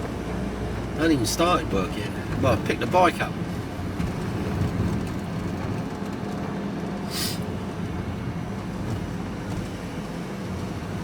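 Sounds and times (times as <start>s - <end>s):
vehicle engine and road noise: 0.0s - 11.0s
brief hiss: 7.1s - 7.4s.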